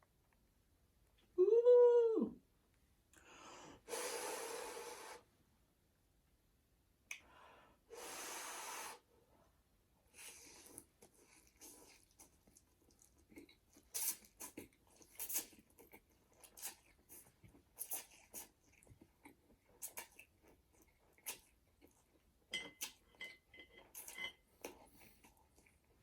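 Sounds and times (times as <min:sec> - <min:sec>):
wet chewing and smacking: 0:10.2 - 0:26.0.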